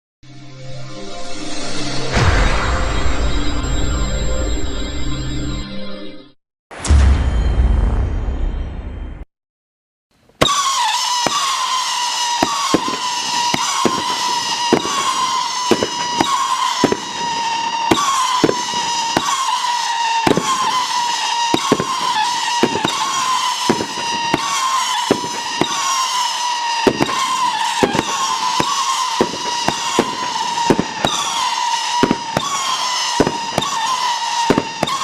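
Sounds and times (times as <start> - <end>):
firework bangs: 10.4 - 35.0
howling firework whistles: 10.4 - 35.0.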